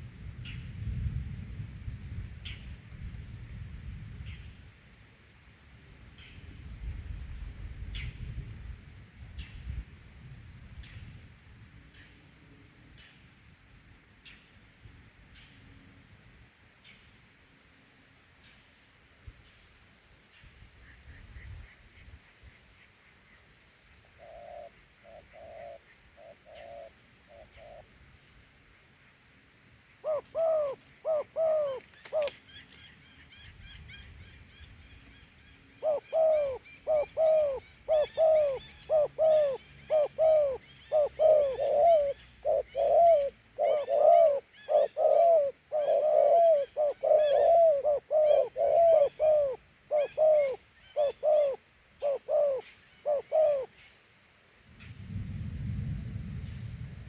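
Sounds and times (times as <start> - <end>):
dove cooing: 24.2 - 27.9, 30.0 - 32.4, 35.8 - 53.8.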